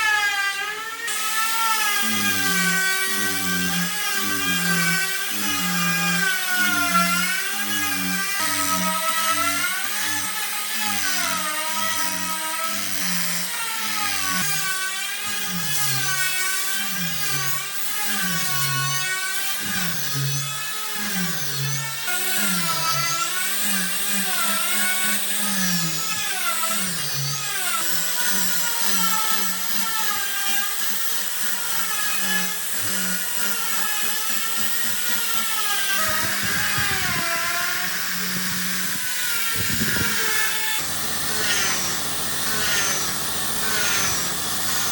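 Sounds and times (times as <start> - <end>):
power tool whining: 0.0 - 44.9
rough cutting noise: 1.1 - 16.1, 33.0 - 44.9.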